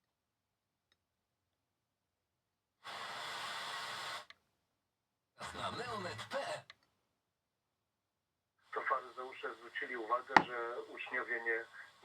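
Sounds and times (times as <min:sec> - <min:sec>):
radio static hiss: 0:08.7 - 0:12.0.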